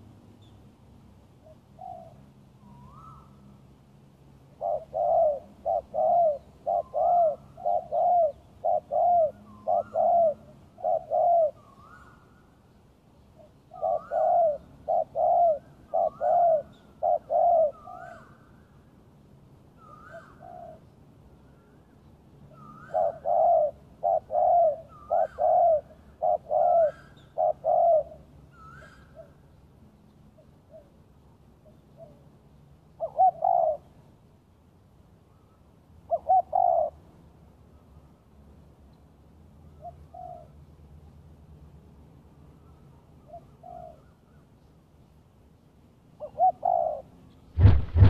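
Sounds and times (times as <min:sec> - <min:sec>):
dove cooing: 0:04.6 - 0:11.6, 0:13.7 - 0:18.2, 0:22.7 - 0:29.4, 0:33.0 - 0:33.9, 0:36.1 - 0:37.0, 0:46.2 - 0:48.0.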